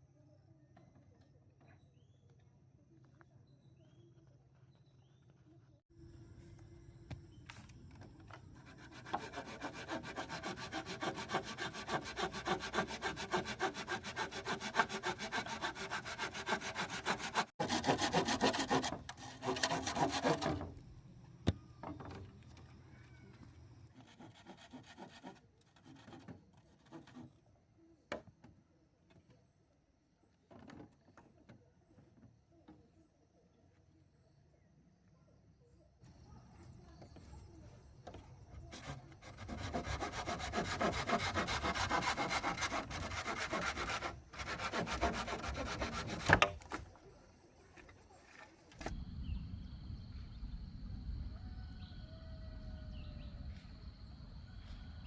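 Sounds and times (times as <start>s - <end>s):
hand saw cutting bamboo: 8.6s - 20.7s, 24.0s - 27.3s, 38.7s - 46.9s.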